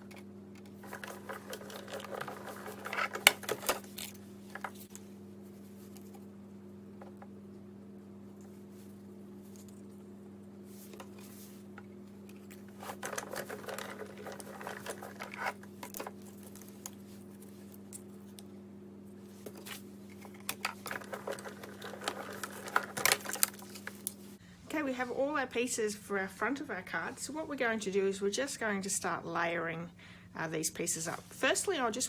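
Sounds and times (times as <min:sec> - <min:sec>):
steady low hum: 0:00.0 - 0:32.0
paper rustling and crinkling: 0:00.8 - 0:05.0, 0:12.4 - 0:17.8, 0:19.4 - 0:24.4.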